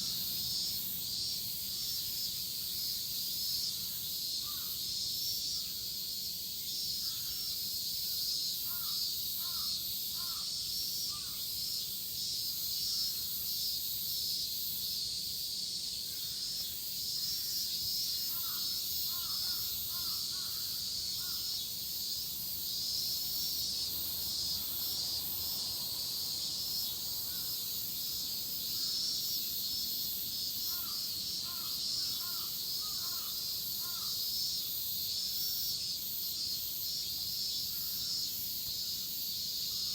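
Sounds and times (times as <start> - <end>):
cicadas buzzing: 0.0 - 39.9
crow cawing: 8.7 - 10.5, 18.3 - 21.5, 30.7 - 34.2.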